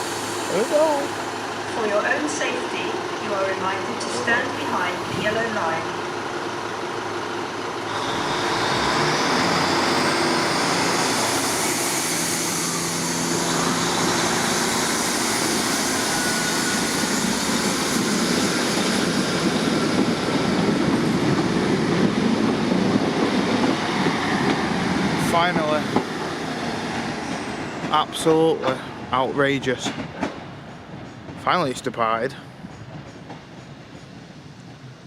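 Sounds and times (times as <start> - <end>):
train pulling out: 0.0 - 35.0.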